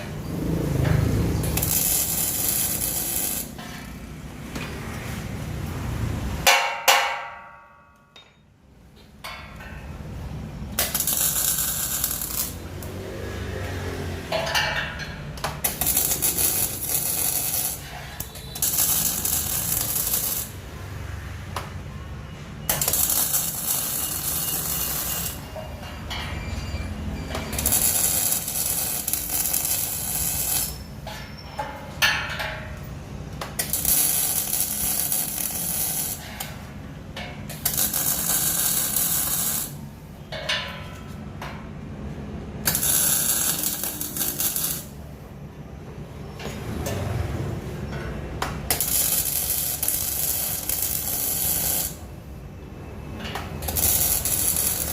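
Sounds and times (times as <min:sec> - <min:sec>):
ringing metal clang: 0:06.5 - 0:10.0, 0:22.6 - 0:32.9, 0:40.2 - 0:41.7.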